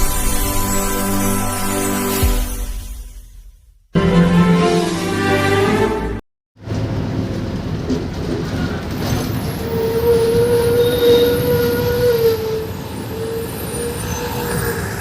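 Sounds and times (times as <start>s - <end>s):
train rumbling: 6.6s - 15.0s.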